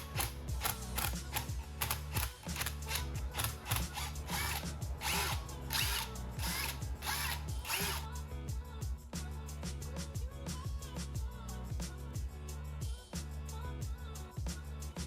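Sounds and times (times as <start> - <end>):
ratchet wrench clicking: 0.0 - 8.1
background music with bass line: 0.0 - 15.0.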